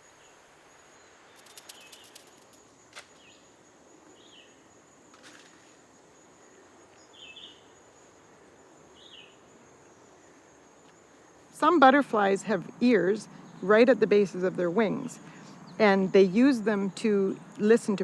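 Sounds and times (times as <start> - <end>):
high-pitched insect trill: 0.0 - 18.0
sharp clicks: 1.4 - 2.6.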